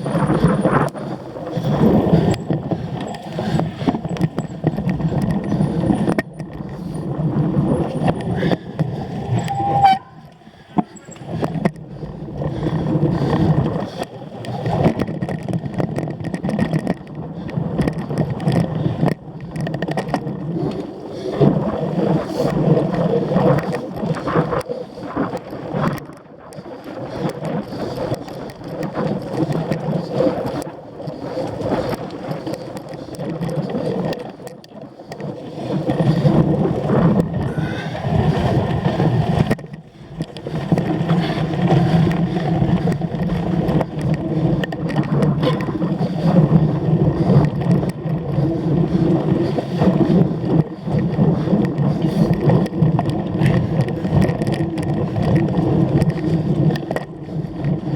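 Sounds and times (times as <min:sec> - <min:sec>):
bike rattling and rolling: 0:00.0 - 0:57.9
brief high note: 0:09.4 - 0:10.2.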